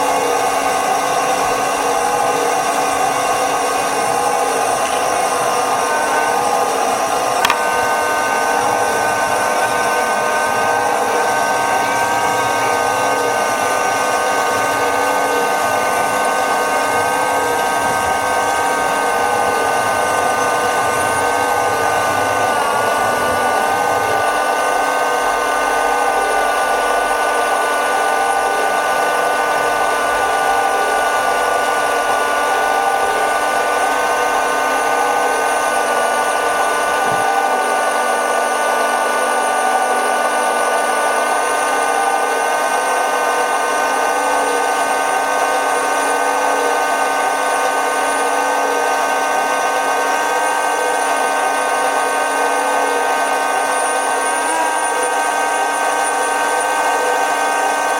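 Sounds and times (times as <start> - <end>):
small electric motors whining: 0.0 - 57.9
sharp click: 7.4 - 7.8.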